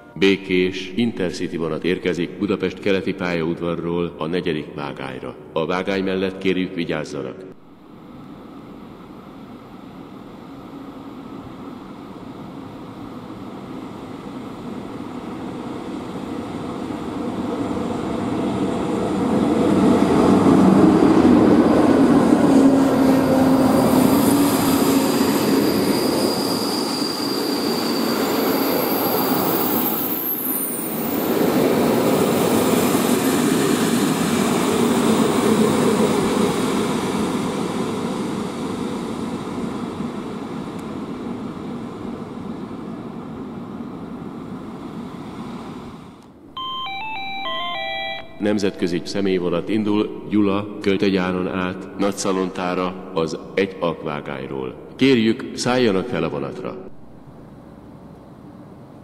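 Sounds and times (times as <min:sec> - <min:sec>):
wheel and brake squeal: 0:23.9 - 0:31.3.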